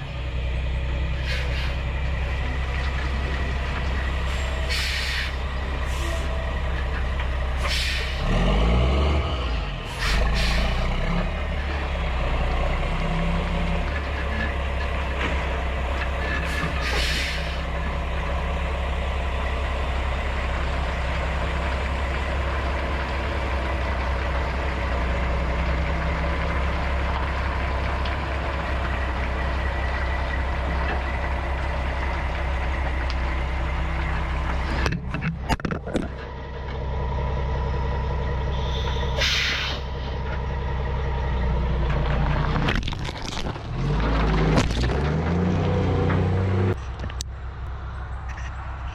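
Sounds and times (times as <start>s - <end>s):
diesel truck engine running: 0.0s - 48.9s
short air hisses: 1.2s - 1.8s, 4.7s - 6.3s, 7.6s - 8.2s, 9.9s - 10.9s, 16.5s - 17.7s, 38.6s - 40.0s.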